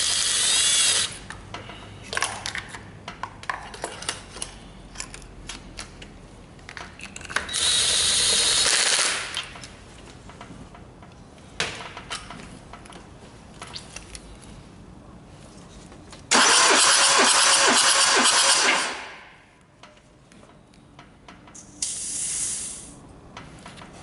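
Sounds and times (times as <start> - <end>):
loud steady air hiss: 21.7 - 23.0.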